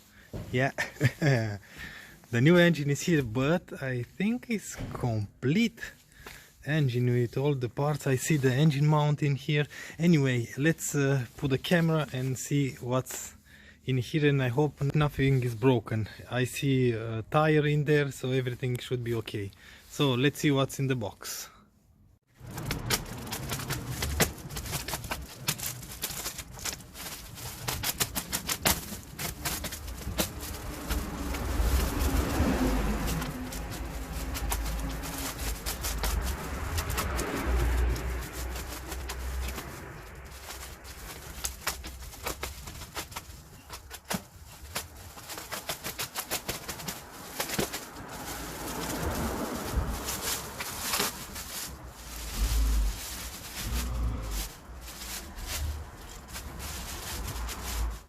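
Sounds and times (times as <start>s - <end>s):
packaging rustling and knocking: 22.4s - 58.0s
low handling rumble: 47.1s - 58.0s.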